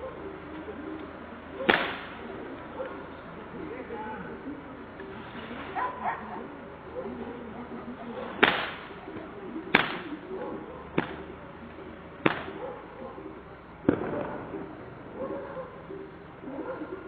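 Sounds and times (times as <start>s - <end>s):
murmur of distant voices: 0.0s - 17.0s
sharp bangs: 1.7s - 2.2s, 8.4s - 9.0s, 13.8s - 14.4s.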